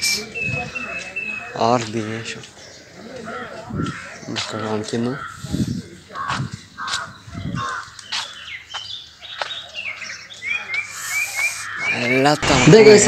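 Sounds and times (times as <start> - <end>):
bird cawing: 0.0 - 8.5, 9.2 - 12.4
short bird chirps: 10.6 - 12.2.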